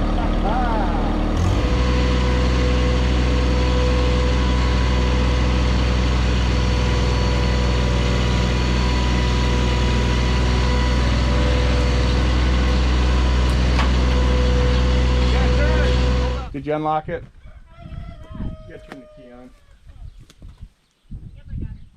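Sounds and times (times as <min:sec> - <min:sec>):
tractor diesel engine idling: 0:00.0 - 0:16.5.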